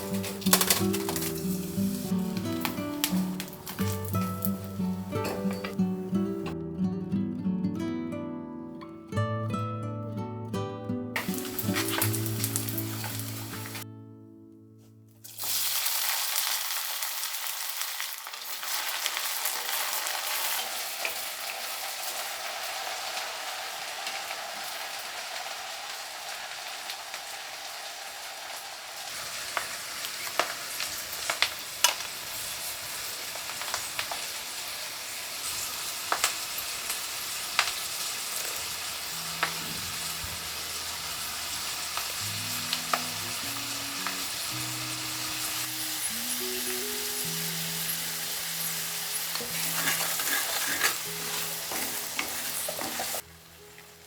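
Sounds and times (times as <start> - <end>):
food sizzling in hot oil: 0.0 - 6.6, 11.2 - 13.8, 15.2 - 54.0
faint background music: 0.0 - 15.2, 38.8 - 54.0
utensil scraping a pan: 49.3 - 53.2.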